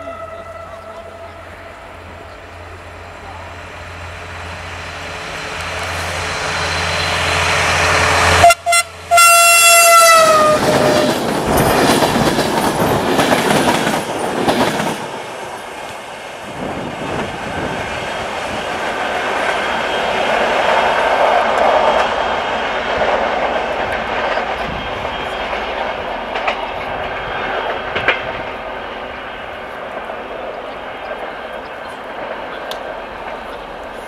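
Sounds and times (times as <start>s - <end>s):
locomotive horn: 0.0s - 2.4s, 8.1s - 11.1s
train passing: 0.0s - 34.0s
coaches clattering over rail joints: 10.5s - 15.2s.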